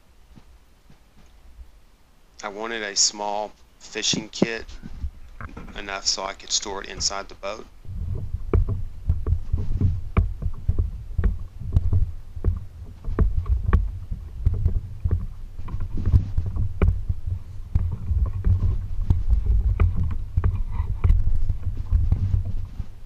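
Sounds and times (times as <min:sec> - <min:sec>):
low uneven rumble: 0:00.0 - 0:23.0.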